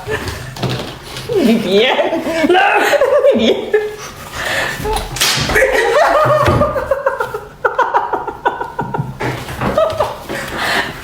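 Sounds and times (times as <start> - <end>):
people laughing: 2.2 - 10.8.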